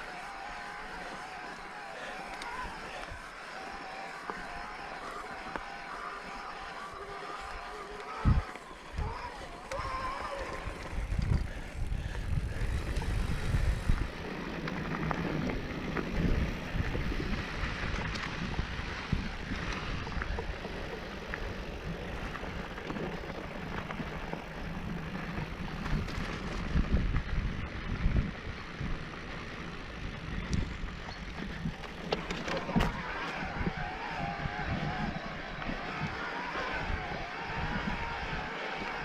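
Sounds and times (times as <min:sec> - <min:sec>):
bike rattling: 0:00.0 - 0:39.0
bike tyres on dirt trail: 0:00.0 - 0:39.0
wind buffeting microphone: 0:08.2 - 0:39.0.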